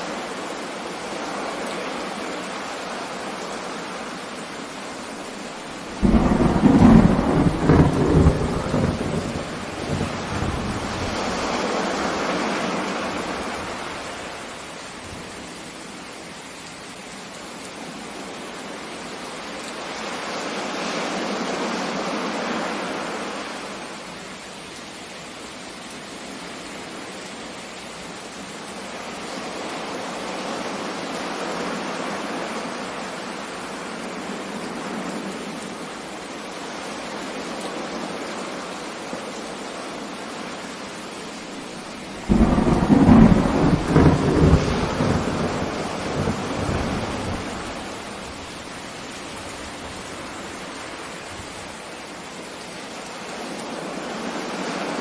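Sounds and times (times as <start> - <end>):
sea surf: 0.0 - 14.7, 19.7 - 24.1, 41.6 - 51.8, 53.2 - 55.0.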